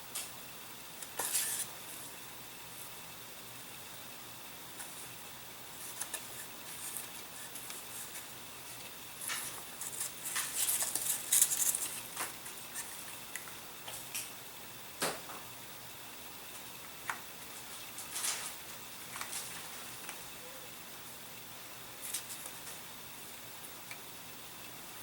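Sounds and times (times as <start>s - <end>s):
scratchy rustles: 5.8s - 13.0s.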